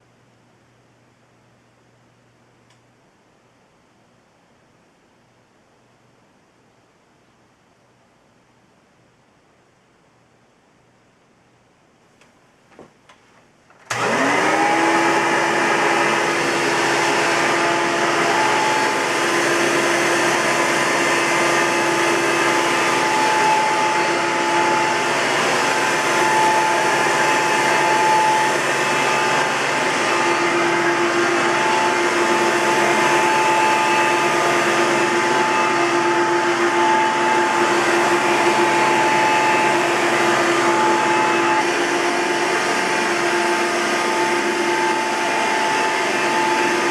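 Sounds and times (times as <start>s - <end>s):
vacuum cleaner motor whine: 13.9s - 46.9s.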